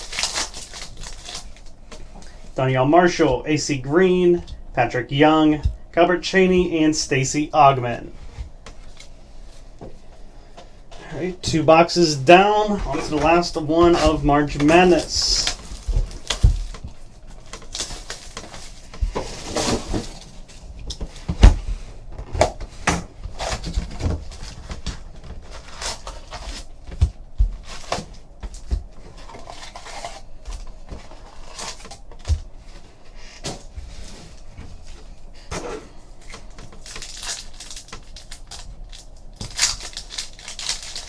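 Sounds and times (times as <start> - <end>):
wrapper tearing: 0.0 - 1.8, 36.5 - 41.0
plastic and paper wrappers crinkling: 0.0 - 5.8, 11.0 - 41.0.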